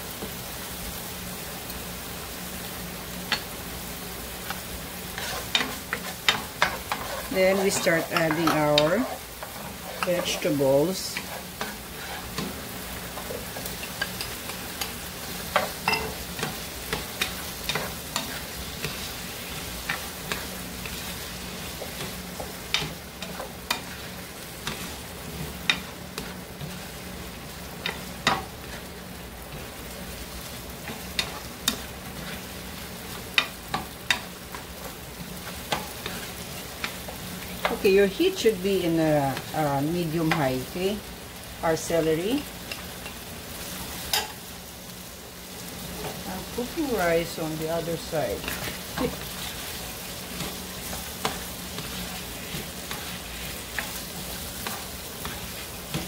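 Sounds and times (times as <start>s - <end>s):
vegetables sizzling in oil: 0.0s - 56.0s.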